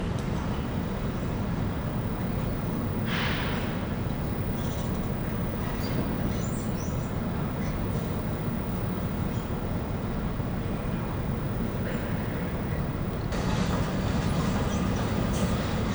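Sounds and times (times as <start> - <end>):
railway station background noise: 0.0 - 15.9
escalator rumbling: 13.3 - 15.9.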